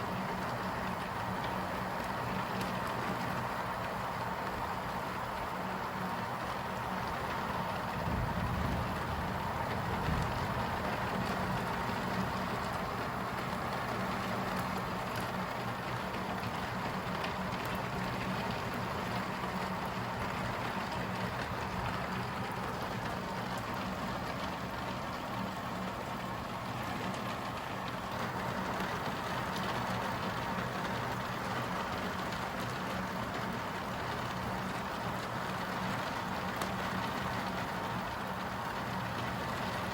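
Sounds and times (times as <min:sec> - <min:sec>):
rain: 0:00.0 - 0:39.9
wind: 0:00.0 - 0:39.9.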